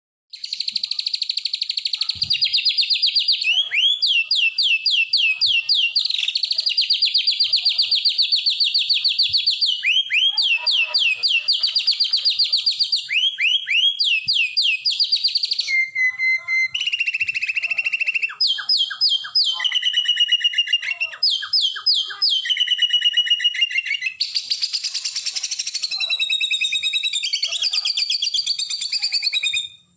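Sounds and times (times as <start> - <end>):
sharp down-slurred whistles: 12.8 - 24.6.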